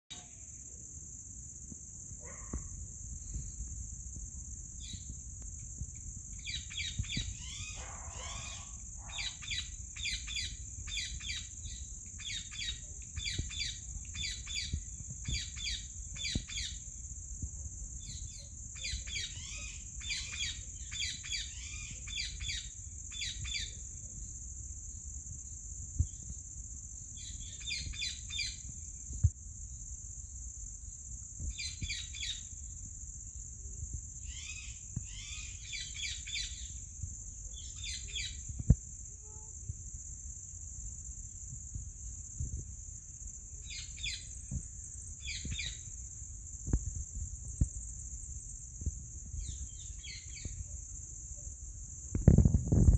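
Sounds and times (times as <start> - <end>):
high-pitched insect trill: 0.1 - 52.9
bird chirps: 6.4 - 16.8.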